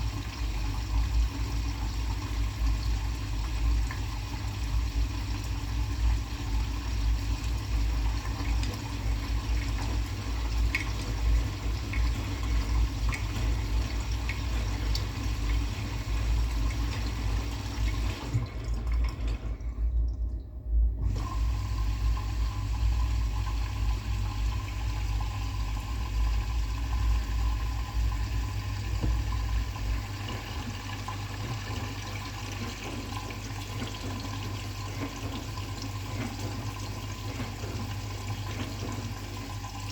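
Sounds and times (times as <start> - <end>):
water sloshing in drum: 0.0 - 20.4, 21.0 - 39.9
washing machine rumble: 0.0 - 39.9.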